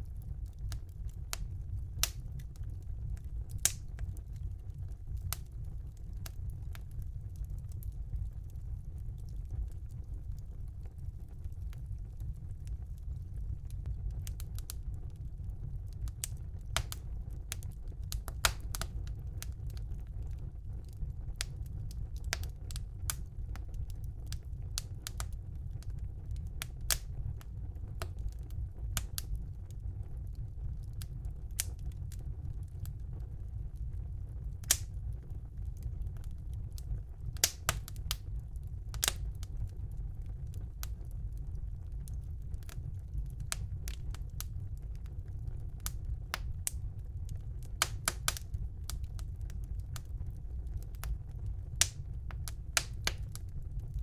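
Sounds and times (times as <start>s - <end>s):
fire crackling and popping: 0.0s - 54.0s
low rumble of flames: 0.0s - 54.0s.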